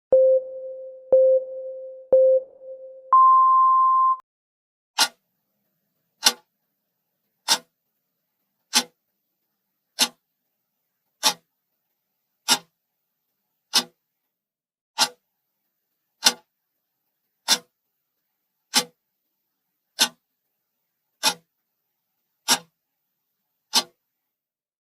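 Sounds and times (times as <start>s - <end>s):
timer beeps: 0.1s - 4.2s
clock-like ticks: 5.0s - 5.2s, 6.2s - 6.5s, 7.5s - 7.7s, 8.7s - 9.0s, 10.0s - 10.2s, 11.2s - 11.5s, 12.5s - 12.7s, 13.7s - 14.0s, 15.0s - 15.2s, 16.2s - 16.5s, 17.5s - 17.7s, 18.7s - 19.0s, 20.0s - 20.2s, 21.2s - 21.5s, 22.5s - 22.7s, 23.7s - 24.0s.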